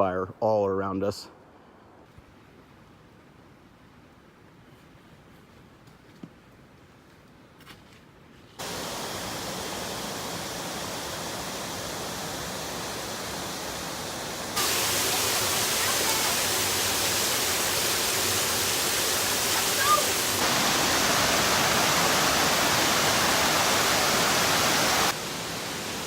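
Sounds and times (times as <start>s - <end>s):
waterfall rushing: 8.6s - 26.0s.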